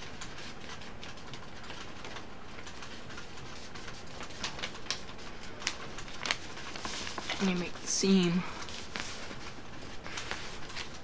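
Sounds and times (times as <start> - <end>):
paper creasing crackles: 0.0 - 11.0
paper rustling: 0.0 - 11.0.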